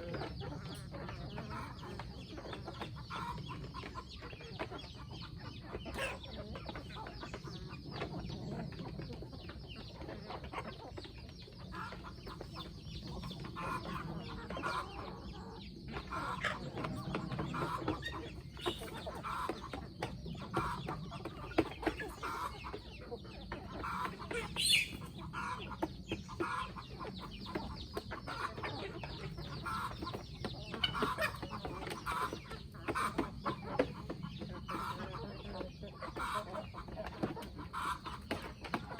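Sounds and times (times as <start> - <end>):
chickens clucking: 0.0 - 38.9
chicken squawk: 11.6 - 23.0, 23.7 - 35.4, 36.0 - 38.9.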